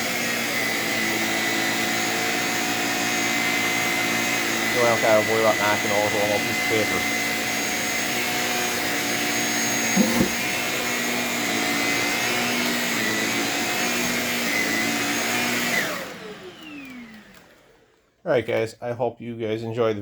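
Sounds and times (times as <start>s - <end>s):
vacuum cleaner motor whine: 0.0s - 18.0s.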